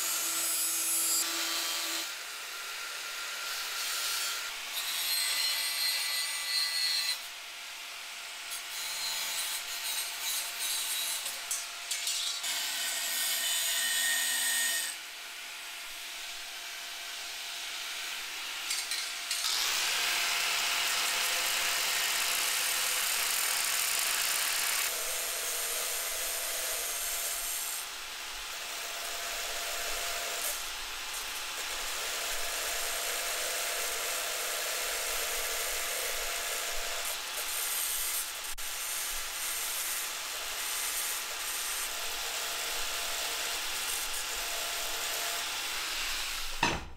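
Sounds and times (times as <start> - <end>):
power tool grinding: 18.6 - 27.8.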